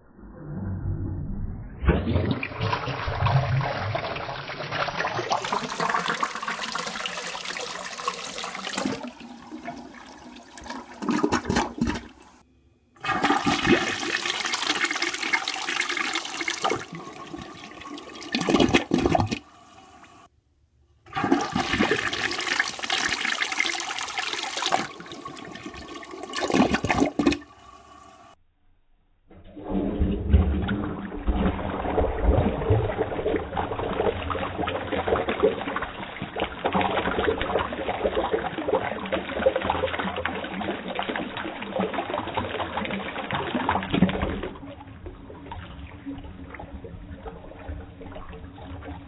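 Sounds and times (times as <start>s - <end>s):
deep gurgle of siphon: 0.0s - 12.0s, 29.3s - 49.0s
toilet flushing: 1.9s - 12.4s, 13.0s - 20.3s, 21.1s - 28.4s, 29.4s - 49.0s.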